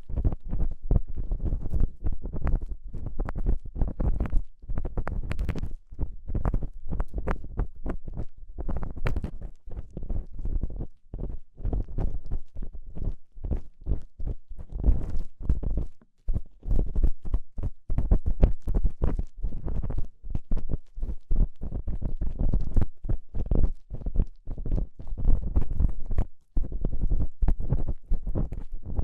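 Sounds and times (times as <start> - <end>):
ear pick scratching and rubbing: 13.5 - 17.4.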